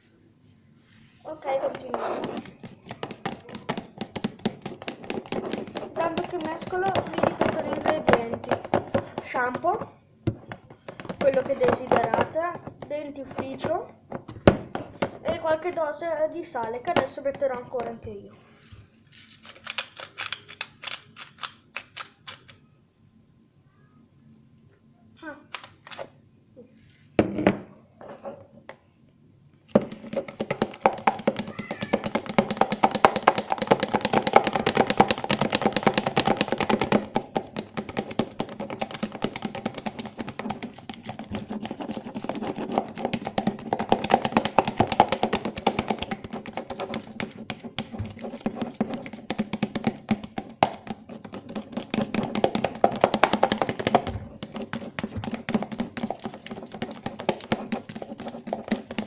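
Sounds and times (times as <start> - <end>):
slime squelching while stirred: 0.6 - 9.6, 10.4 - 13.6, 29.8 - 59.0.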